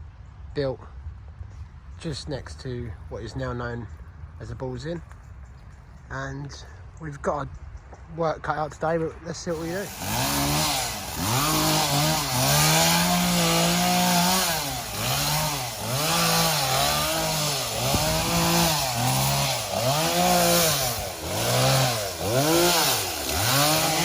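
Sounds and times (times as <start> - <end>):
chainsaw engine revving: 9.4 - 24.0.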